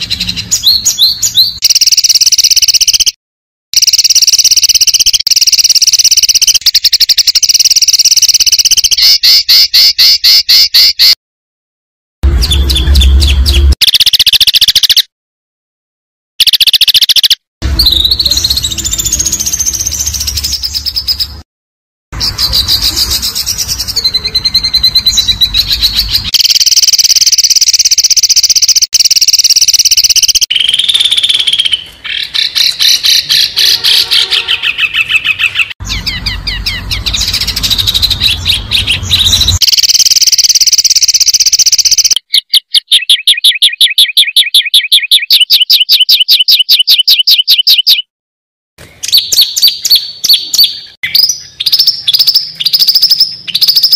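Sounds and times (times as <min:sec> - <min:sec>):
bird repeated notes: 0:00.0 - 0:03.2, 0:03.8 - 0:11.2, 0:12.2 - 0:15.1, 0:16.4 - 0:21.4, 0:22.2 - 0:48.1, 0:49.0 - 0:53.9
songbird chattering and chirping: 0:03.8 - 0:11.2, 0:22.2 - 0:48.0, 0:49.0 - 0:53.9.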